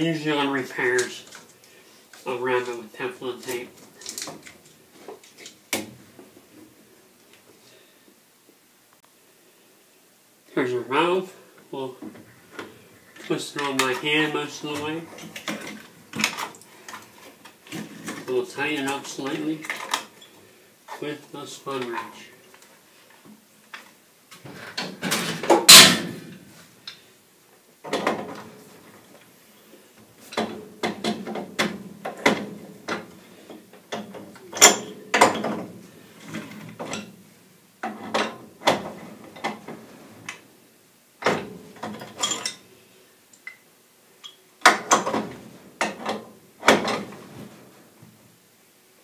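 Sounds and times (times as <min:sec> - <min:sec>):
wrench clanking and scraping metal: 0:34.0 - 0:37.1, 0:41.3 - 0:42.6.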